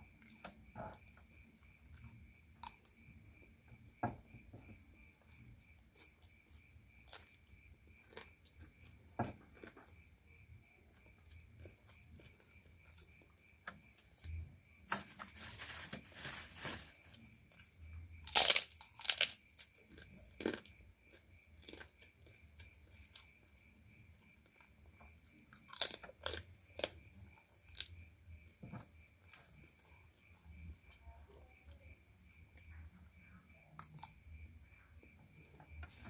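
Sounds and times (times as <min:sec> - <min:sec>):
crunching bites and chewing: 0:00.2 - 0:03.0, 0:05.9 - 0:10.4, 0:11.0 - 0:23.4, 0:24.5 - 0:28.0, 0:33.8 - 0:34.2
food crackling: 0:14.9 - 0:17.6, 0:18.2 - 0:22.4, 0:25.6 - 0:28.0.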